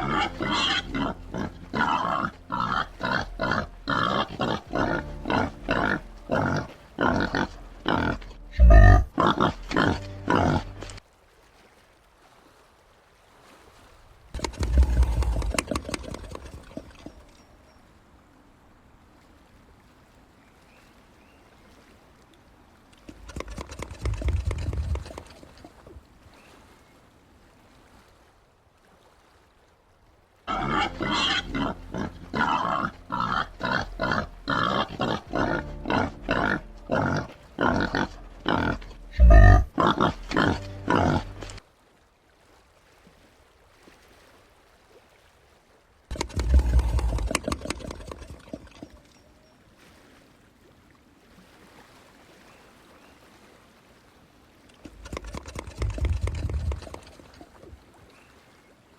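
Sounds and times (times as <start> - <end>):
peccary pulsed grunts: 0.0 - 11.0, 14.4 - 16.8, 30.5 - 41.6, 46.1 - 48.2
peccary rasping calls: 0.0 - 11.0, 14.4 - 17.3, 23.0 - 25.7, 30.5 - 41.6, 46.1 - 49.1, 54.8 - 57.4.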